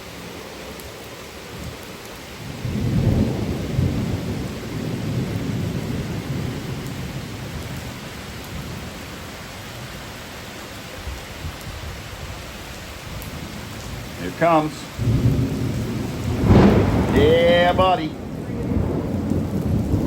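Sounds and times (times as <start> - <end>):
steady rain: 0.0 - 20.0
thunder rumbling: 1.5 - 10.0, 12.7 - 20.0.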